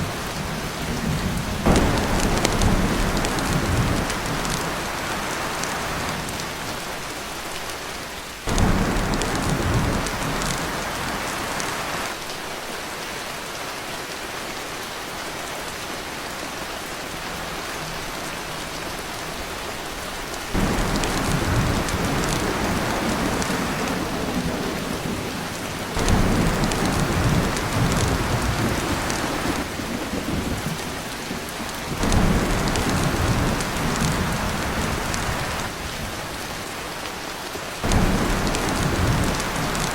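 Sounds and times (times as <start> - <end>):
thunder rumbling: 0.0 - 6.8, 8.5 - 12.2, 20.5 - 36.1, 37.8 - 39.9
heavy rain on a tin roof: 0.0 - 39.9.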